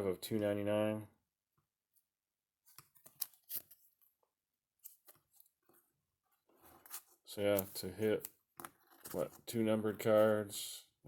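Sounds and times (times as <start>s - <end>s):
trading cards rustling: 2.7s - 4.1s.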